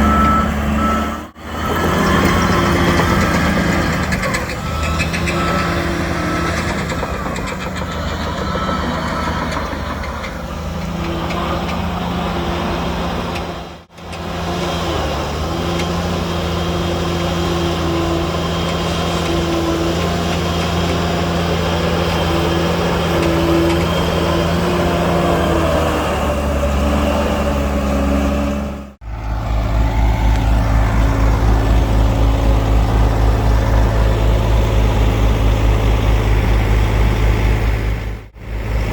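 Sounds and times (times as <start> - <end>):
heavy diesel engines running: 0.0 - 38.9.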